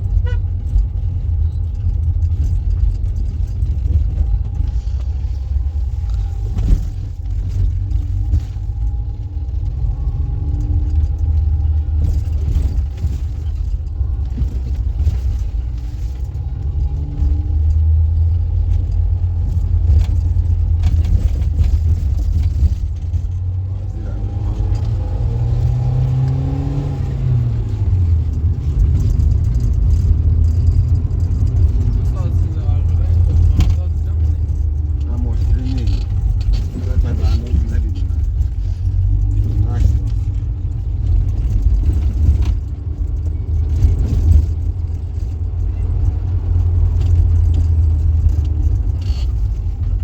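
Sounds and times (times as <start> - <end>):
vehicle engine rumbling: 0.0 - 50.0.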